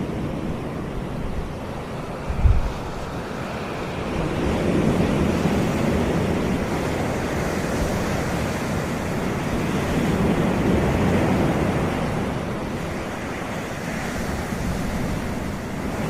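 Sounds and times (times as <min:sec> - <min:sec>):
surf washing onto beach: 0:00.0 - 0:16.0.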